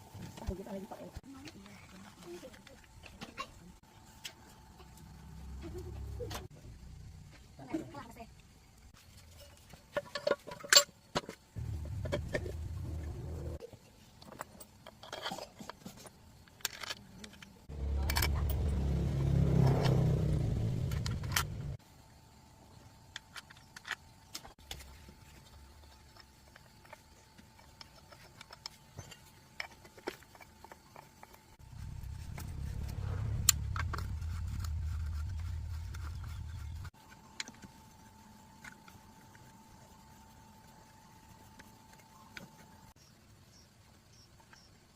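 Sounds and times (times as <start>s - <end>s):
low rumble: 11.6s - 13.6s, 17.7s - 21.8s, 31.6s - 36.9s.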